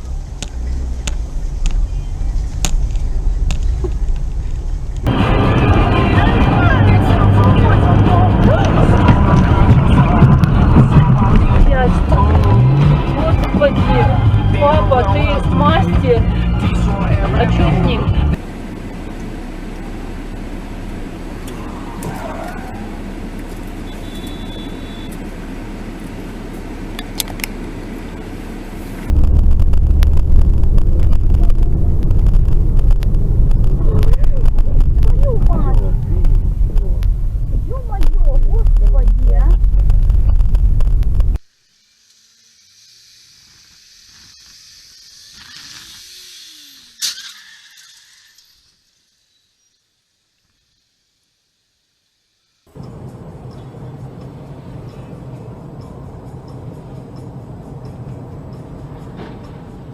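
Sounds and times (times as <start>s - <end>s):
loud low rumble: 0.0s - 23.8s, 29.0s - 41.4s
car road noise: 0.0s - 59.9s.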